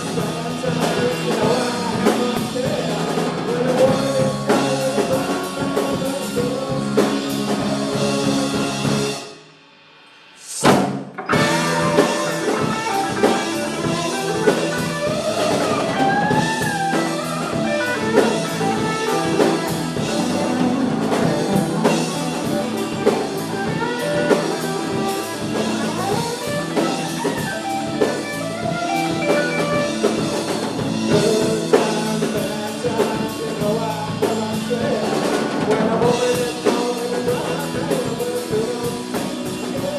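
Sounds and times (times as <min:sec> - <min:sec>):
rock band playing: 0:00.0 - 0:09.6, 0:10.2 - 0:39.9
loud drum hit: 0:10.5 - 0:26.5.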